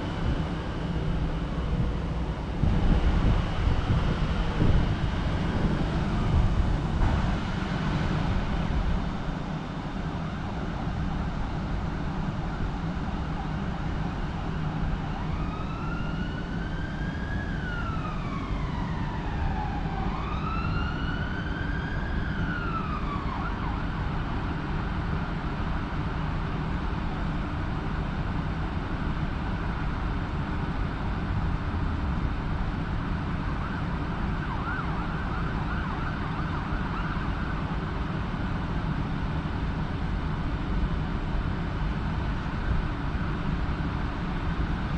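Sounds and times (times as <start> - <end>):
steady low rumble: 0.0 - 15.8
emergency siren wailing: 13.0 - 24.6, 32.8 - 38.4.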